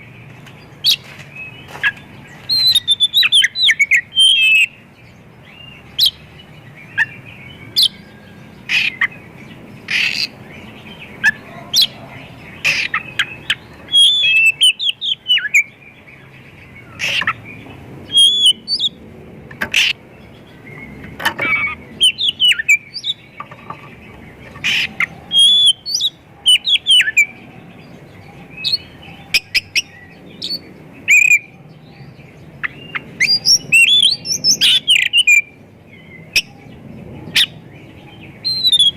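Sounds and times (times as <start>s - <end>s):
bird singing varied whistles: 2.5s - 4.7s, 13.9s - 15.7s, 18.1s - 18.9s.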